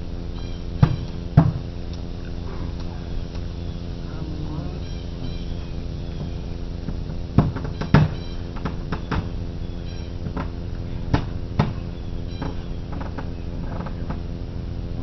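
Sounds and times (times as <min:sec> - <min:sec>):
knocks and taps on wood: 0:11.1 - 0:11.8.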